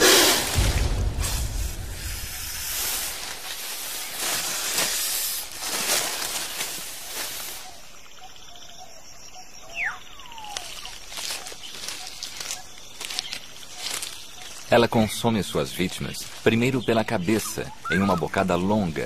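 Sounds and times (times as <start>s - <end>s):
snake hissing: 0.0s - 5.5s
forest ambience: 0.0s - 19.0s.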